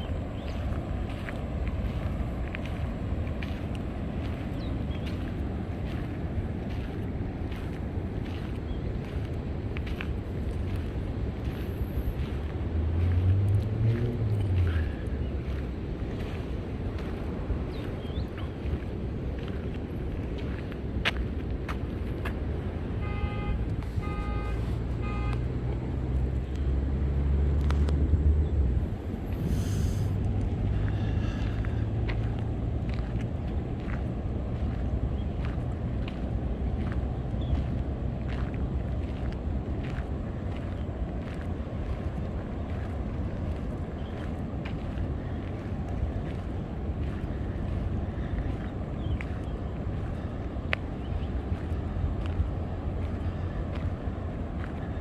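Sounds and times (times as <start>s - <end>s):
vehicle engine drone: 0.0s - 55.0s.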